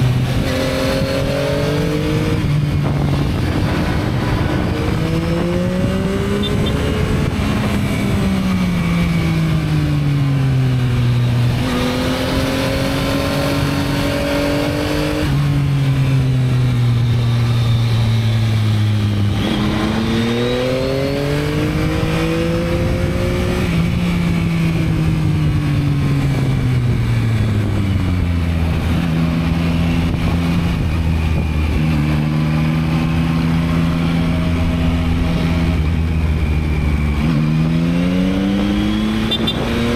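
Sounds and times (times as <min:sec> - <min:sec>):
motorcycle engine while riding: 0:00.0 - 0:39.9
wind noise rushing: 0:00.1 - 0:09.7, 0:19.3 - 0:32.0.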